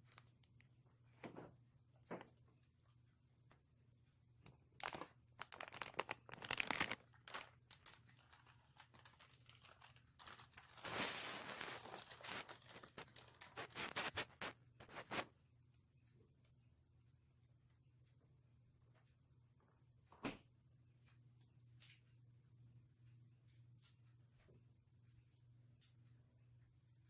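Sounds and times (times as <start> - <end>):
rustling and crinkling: 0.0 - 3.0, 4.4 - 15.3.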